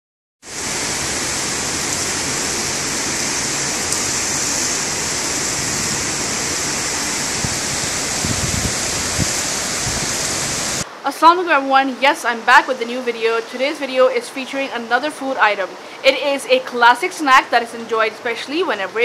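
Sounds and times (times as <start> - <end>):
heavy rain pouring: 0.4 - 19.0.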